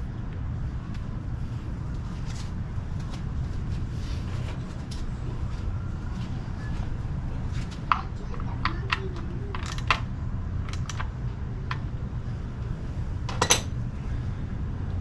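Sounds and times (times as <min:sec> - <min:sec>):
low background hum: 0:00.0 - 0:15.0
tools and plastic parts clicking: 0:08.6 - 0:10.1.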